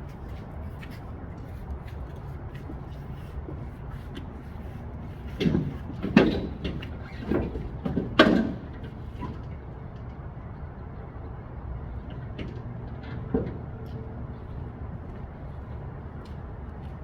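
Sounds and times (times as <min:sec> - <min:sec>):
truck engine low drone: 0:00.0 - 0:17.0
loud clunks and rattles: 0:05.4 - 0:08.9.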